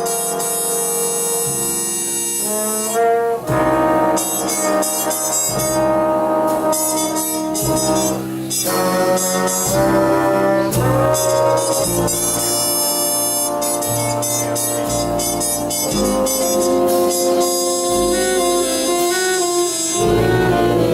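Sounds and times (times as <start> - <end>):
brass sustained chords: 0.0 - 20.9
trumpet melody: 0.0 - 20.9.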